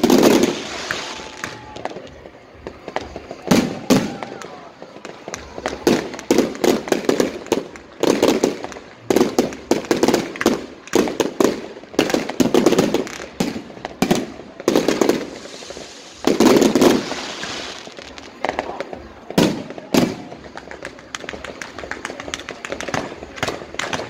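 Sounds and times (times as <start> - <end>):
fireworks cracking and booming: 0.0 - 24.0.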